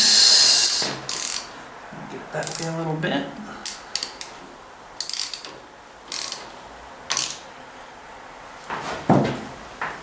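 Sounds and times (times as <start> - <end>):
ratchet wrench clicking: 0.0 - 1.5, 2.4 - 2.7, 3.6 - 4.3, 5.0 - 6.4, 7.1 - 7.4.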